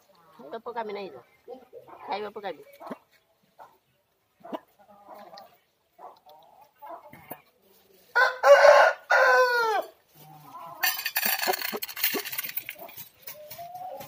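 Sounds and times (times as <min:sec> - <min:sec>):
rooster crowing: 0:08.2 - 0:09.9
scratchy rustling and clatter: 0:10.2 - 0:14.0.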